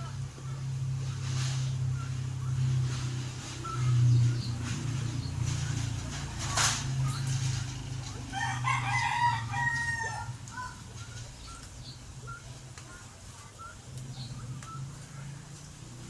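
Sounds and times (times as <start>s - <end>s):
soft chirping calls: 0.0s - 8.3s, 10.0s - 16.0s
rooster crowing: 8.2s - 10.8s.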